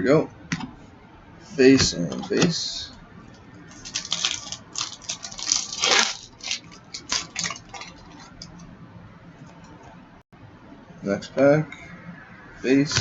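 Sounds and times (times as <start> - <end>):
card packs crinkling and rustling: 3.7 - 8.6.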